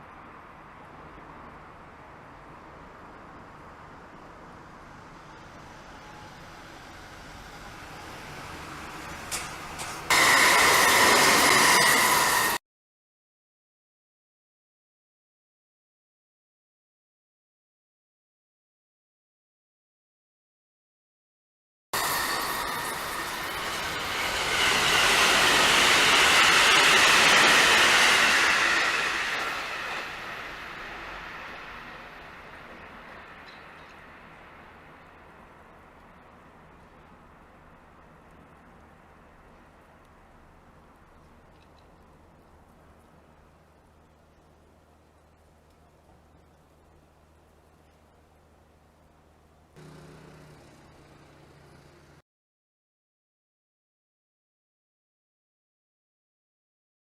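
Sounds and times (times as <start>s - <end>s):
train rumble: 0.0s - 12.6s, 22.0s - 52.2s
train wheels on rails: 4.4s - 12.6s, 22.0s - 43.1s.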